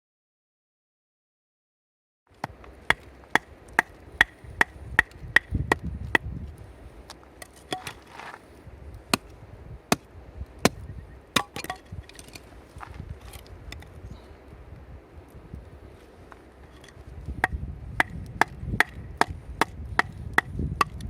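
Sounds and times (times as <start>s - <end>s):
blade chopping: 11.4s - 12.3s, 17.4s - 21.0s.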